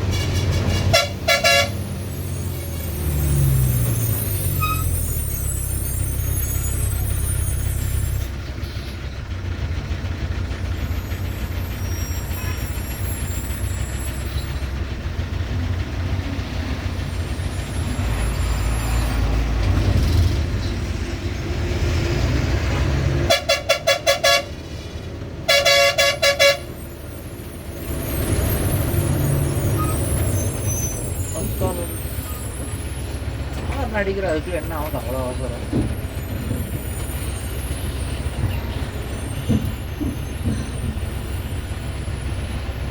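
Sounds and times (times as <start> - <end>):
heavy truck engine running: 0.0 - 42.9
vehicle horn pulsed toots: 0.9 - 1.8, 23.3 - 24.5, 25.5 - 26.7.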